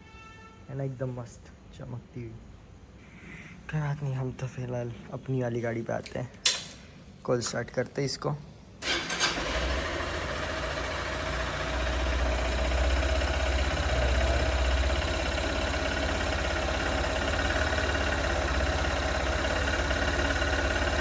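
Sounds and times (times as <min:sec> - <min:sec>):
motorcycle engine idling: 0:08.8 - 0:21.0.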